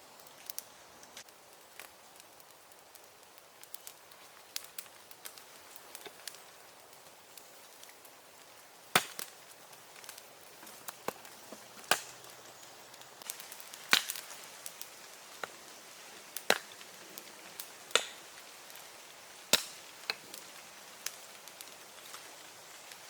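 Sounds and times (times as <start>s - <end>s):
wood being chopped: 8.9s - 9.3s, 11.8s - 12.1s, 13.9s - 14.2s, 16.4s - 16.8s, 17.9s - 18.2s, 19.5s - 20.2s.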